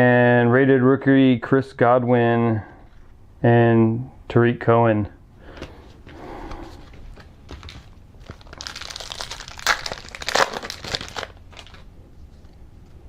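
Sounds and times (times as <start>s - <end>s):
plastic wrapper crinkling: 6.9s - 12.6s.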